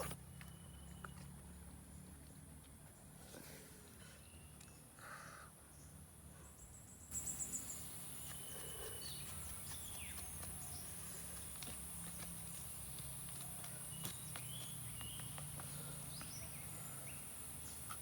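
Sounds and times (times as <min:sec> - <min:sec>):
high insect drone: 0:07.1 - 0:09.9
quick run of chirps: 0:07.1 - 0:18.0
short bird calls: 0:07.2 - 0:11.4.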